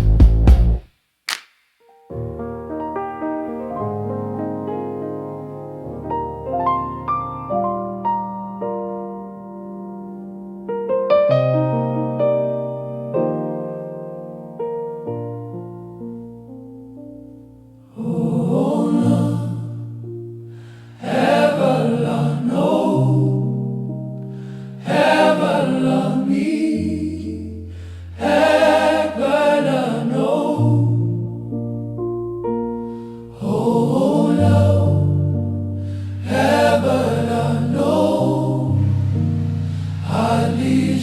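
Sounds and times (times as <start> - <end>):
held bass notes: 0.0 - 0.8, 33.9 - 41.0
keyboard chords: 2.1 - 41.0
gospel choir singing: 17.9 - 20.0, 20.6 - 23.7, 24.5 - 31.4, 33.3 - 41.0.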